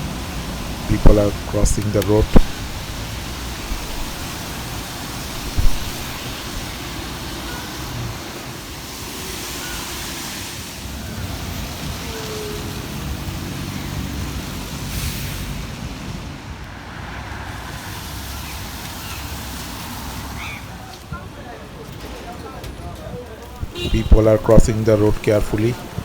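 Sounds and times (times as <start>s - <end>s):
passing cars and tyre noise: 0.0s - 20.8s
sharp thump: 5.4s - 6.7s.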